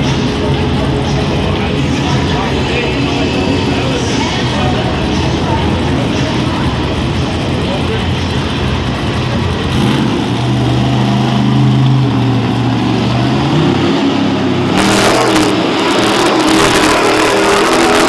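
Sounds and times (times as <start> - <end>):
monster truck engine revving: 0.0 - 18.0
loud hissing roar: 9.7 - 18.0.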